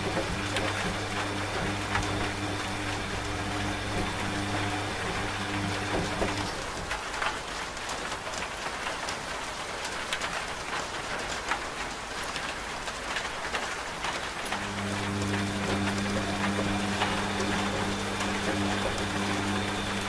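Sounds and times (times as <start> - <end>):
washing machine motor hum: 0.0 - 7.4, 14.4 - 20.0
rain drop ticks: 0.0 - 20.0
steady rain hiss: 0.0 - 20.0.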